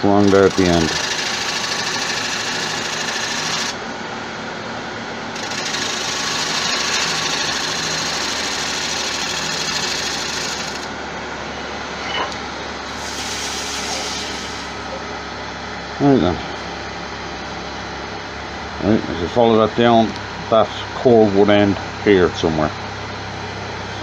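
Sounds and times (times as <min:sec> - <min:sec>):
wood lathe gouge cutting hiss: 0:00.0 - 0:03.8, 0:05.4 - 0:10.9, 0:12.9 - 0:14.9
lathe motor hum: 0:00.0 - 0:04.4, 0:05.3 - 0:15.8.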